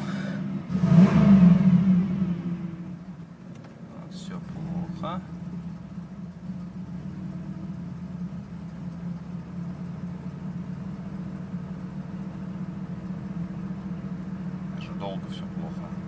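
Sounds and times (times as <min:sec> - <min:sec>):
car engine idling roughly: 0:00.0 - 0:00.6, 0:04.1 - 0:16.0.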